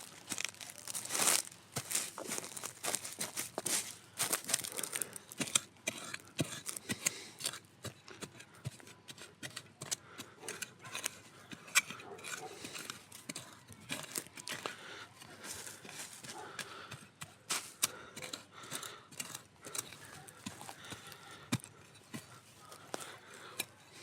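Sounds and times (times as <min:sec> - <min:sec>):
campfire kindling crackling: 0:00.0 - 0:05.6.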